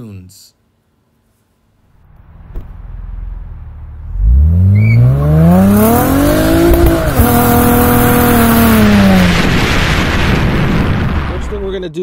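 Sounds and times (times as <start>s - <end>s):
car engine accelerating: 1.9s - 10.3s.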